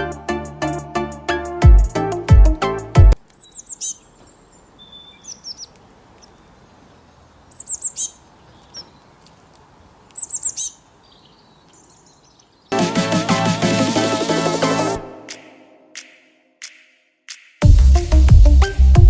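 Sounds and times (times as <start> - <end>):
bass-heavy music: 0.0 - 3.2, 12.8 - 15.4, 17.6 - 19.0
bird chirping: 3.2 - 12.8.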